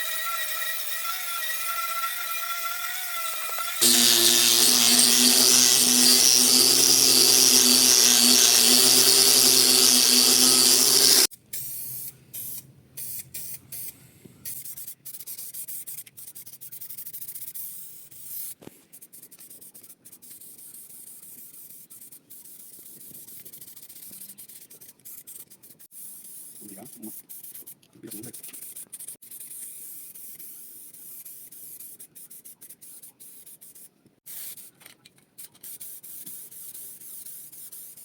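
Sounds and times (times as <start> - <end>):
motor humming: 3.4 - 11.3.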